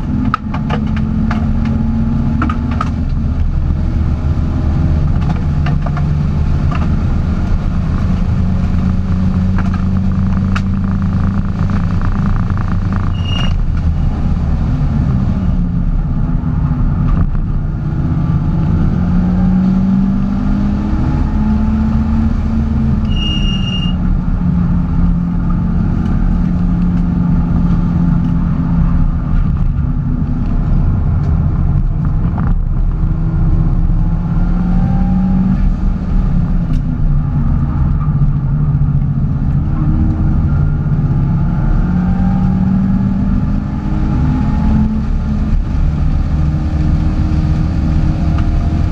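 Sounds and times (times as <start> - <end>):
car engine running: 0.0 - 48.9
road noise: 0.0 - 48.9
short high beeps: 13.1 - 13.6, 23.1 - 24.0.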